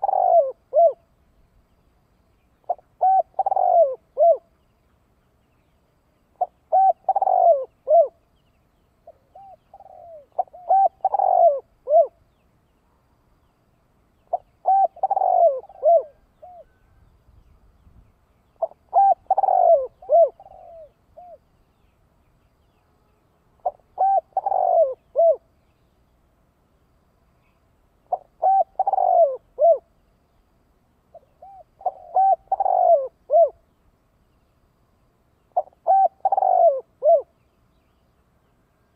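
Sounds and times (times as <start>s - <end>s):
dove cooing: 0.0s - 1.1s, 2.7s - 4.5s, 6.4s - 8.2s, 9.0s - 12.2s, 14.3s - 16.9s, 18.6s - 21.5s, 23.6s - 25.5s, 28.0s - 29.9s, 31.1s - 33.6s, 35.5s - 37.4s.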